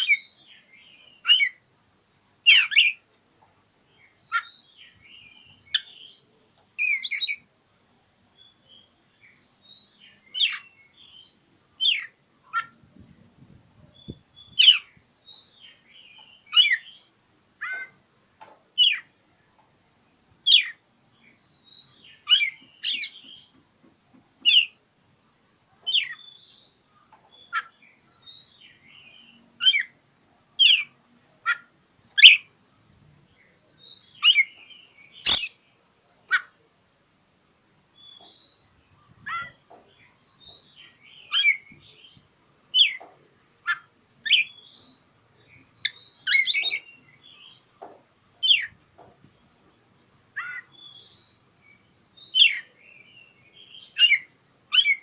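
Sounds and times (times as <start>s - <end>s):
bird whistled chirps: 35.2s - 35.6s.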